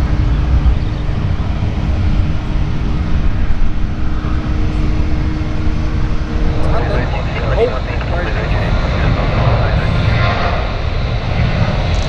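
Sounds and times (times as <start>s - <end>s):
jet engines roaring: 0.0s - 12.0s
higher hum: 4.3s - 11.2s.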